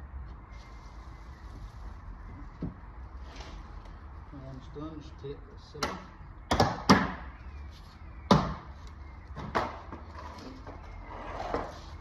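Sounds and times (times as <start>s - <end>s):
handling and scraping noises: 0.3s - 4.7s, 8.8s - 12.0s.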